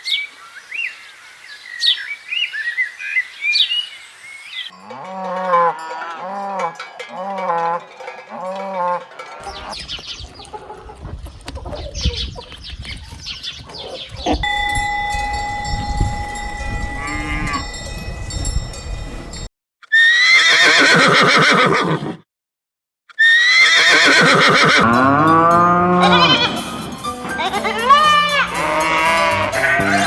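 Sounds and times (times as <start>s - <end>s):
steady ringing tone: 14.4s - 19.5s.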